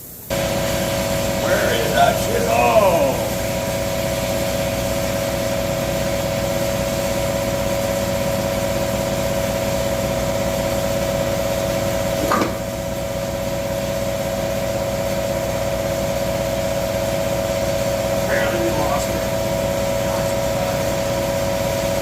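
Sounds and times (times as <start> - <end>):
air compressor humming: 0.0 - 22.0
short knock: 12.2 - 12.6.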